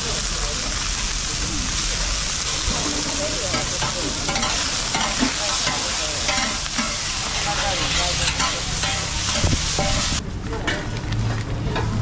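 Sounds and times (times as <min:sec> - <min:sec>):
omelette sizzling on a pan: 0:00.0 - 0:10.2
metal spatulas scraping a pan: 0:02.8 - 0:10.2.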